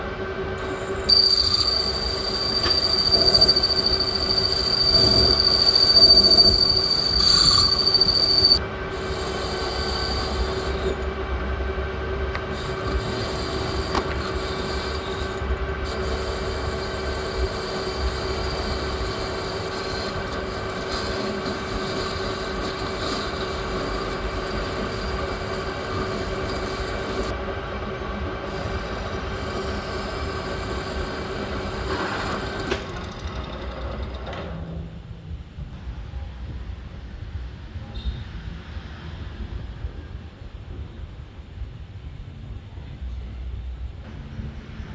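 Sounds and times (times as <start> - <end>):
lathe humming: 0.3 - 34.2
high-pitched squeal: 0.6 - 11.3, 12.4 - 27.4.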